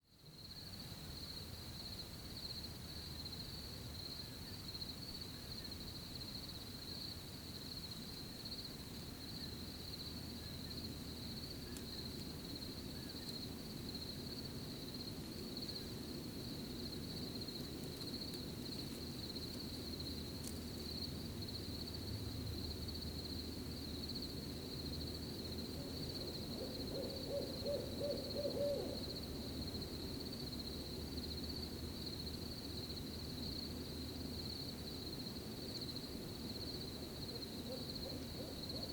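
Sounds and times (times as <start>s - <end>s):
low background noise: 0.0s - 38.9s
crickets chirring: 0.1s - 38.9s
owl hooting: 25.8s - 29.1s, 37.6s - 38.9s.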